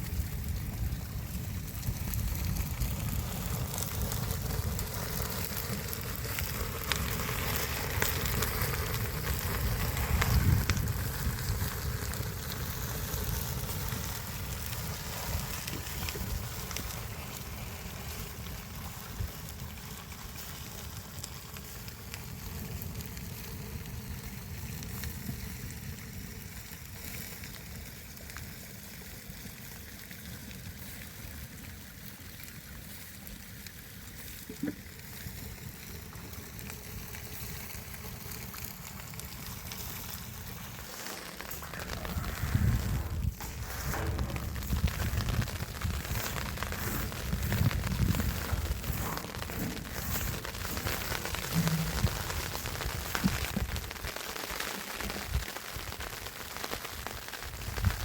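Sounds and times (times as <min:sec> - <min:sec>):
wind rumble on microphone: 0:00.0 - 0:20.2, 0:41.4 - 0:54.1, 0:57.5 - 0:58.0.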